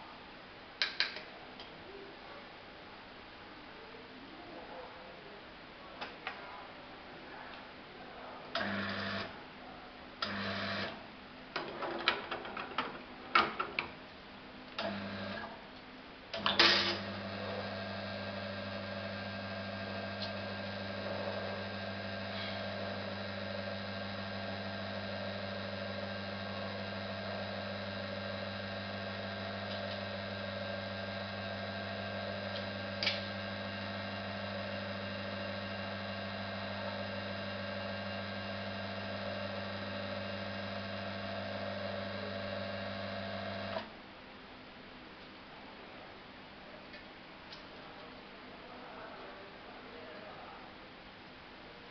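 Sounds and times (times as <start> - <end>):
coffee machine hum and hiss: 8.6 - 9.3, 14.8 - 15.6, 16.4 - 43.9.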